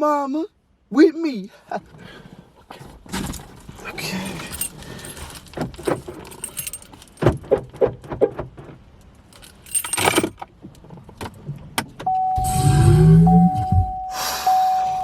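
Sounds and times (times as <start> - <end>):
jingling metal: 4.2 - 7.2, 9.3 - 10.4
steady electronic tone: 12.2 - 15.0.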